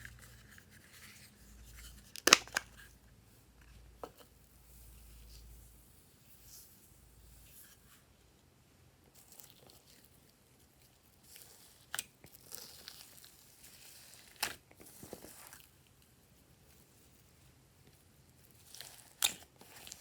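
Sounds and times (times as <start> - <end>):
slime being squished and stretched: 2.1 - 2.8
sharp slime snaps: 2.2 - 2.7.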